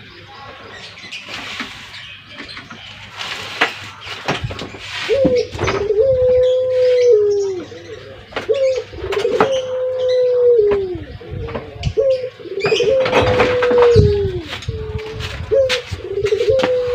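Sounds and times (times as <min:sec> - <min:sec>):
dove cooing: 0:04.5 - 0:16.9.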